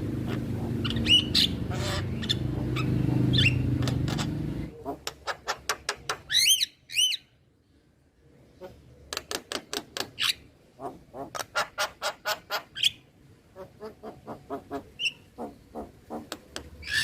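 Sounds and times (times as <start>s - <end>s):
myna calling: 0.0s - 5.7s, 13.5s - 17.0s
rising and falling whistled calls: 0.8s - 4.3s, 6.3s - 7.3s.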